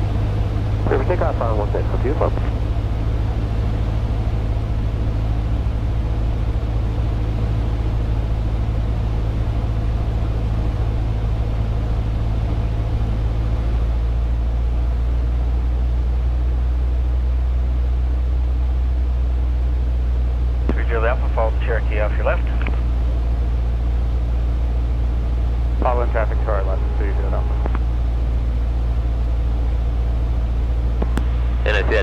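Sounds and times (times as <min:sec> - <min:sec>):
light aircraft engine droning: 0:00.0 - 0:32.0.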